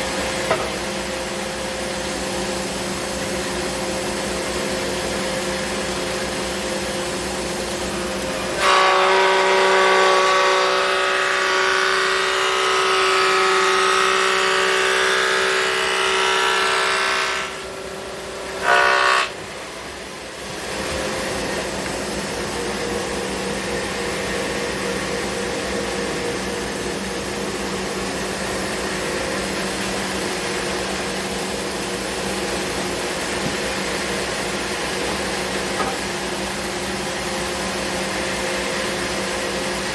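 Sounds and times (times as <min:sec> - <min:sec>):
planer cutting board with whine: 0:00.0 - 0:39.9
thickness planer running: 0:00.0 - 0:39.9.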